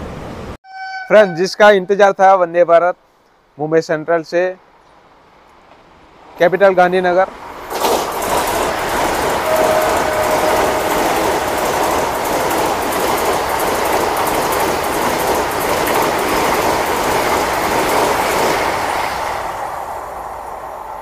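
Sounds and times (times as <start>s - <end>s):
clickety-clack over rail joints: 5.6s - 21.0s
train wheels rushing on rail: 5.6s - 21.0s.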